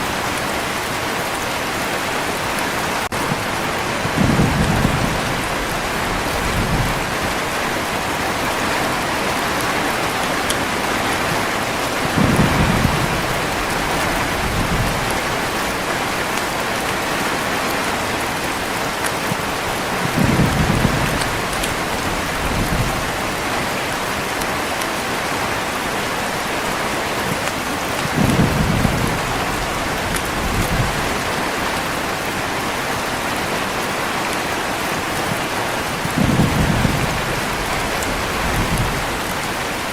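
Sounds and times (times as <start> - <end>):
heavy rain hissing: 0.0 - 39.9
low thunder rumbles: 2.6 - 24.7, 27.7 - 32.2, 35.2 - 39.9.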